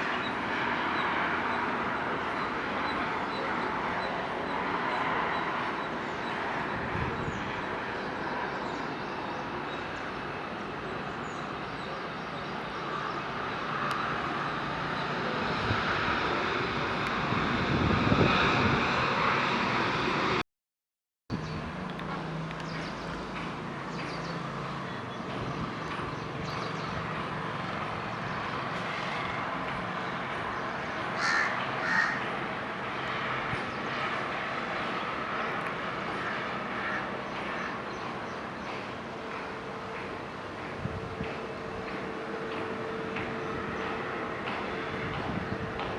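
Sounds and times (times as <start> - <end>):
jet airliner rushing: 12.9 - 20.4
low engine hum: 21.3 - 45.9
crow cawing: 31.2 - 32.3, 36.2 - 37.1.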